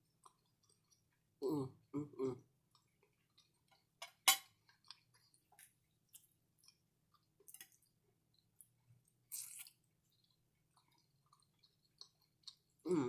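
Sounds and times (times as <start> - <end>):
close chewing and mouth sounds: 0.0 - 13.0.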